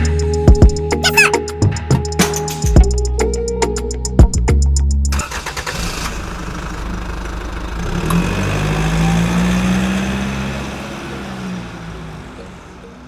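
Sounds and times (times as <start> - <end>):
vehicle engine revving: 5.1 - 12.7.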